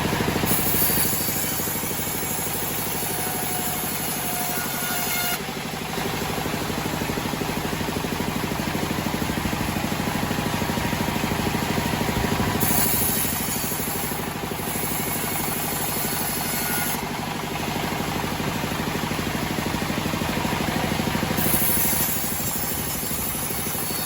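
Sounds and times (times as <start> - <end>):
sawmill engine running: 0.0 - 24.0.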